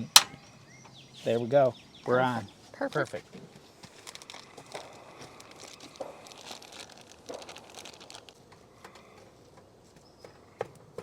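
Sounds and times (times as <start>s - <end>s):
faint packaging crinkling: 3.8s - 8.4s.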